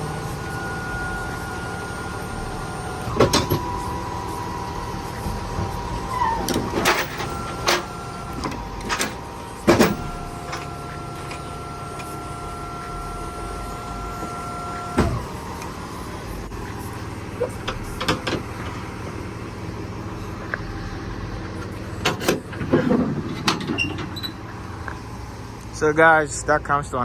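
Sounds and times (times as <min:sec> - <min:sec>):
electric motor whine: 0:00.0 - 0:22.0
loud metallic clunks: 0:05.1 - 0:12.1.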